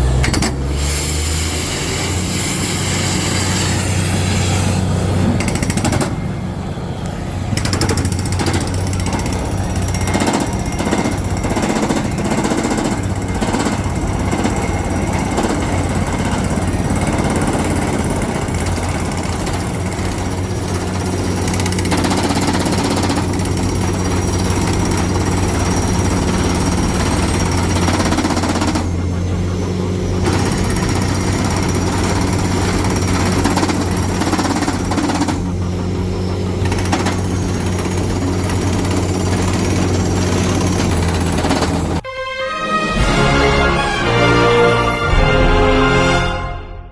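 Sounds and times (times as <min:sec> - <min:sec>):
diesel engine drone: 0:00.0 - 0:46.6.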